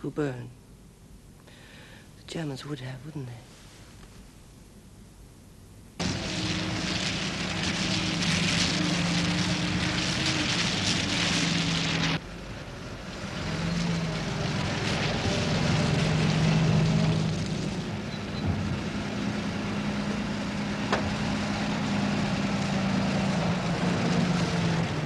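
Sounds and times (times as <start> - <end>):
car engine running: 6.0 - 12.2
wind and road noise: 6.0 - 25.0.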